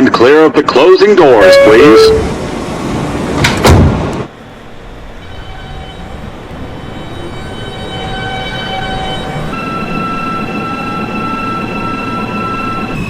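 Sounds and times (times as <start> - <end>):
electric traction motor whine: 4.6 - 13.0.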